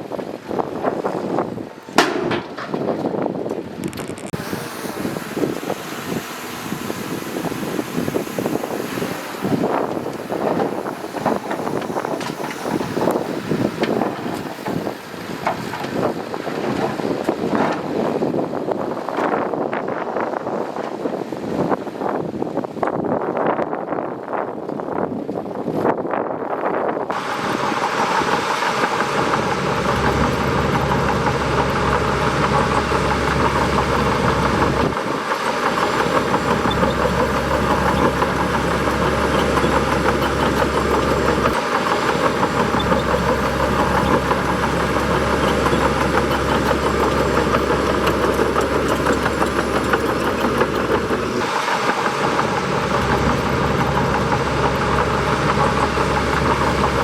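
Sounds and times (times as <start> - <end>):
bulldozer diesel engine running: 4.3 - 19.1, 27.1 - 57.0.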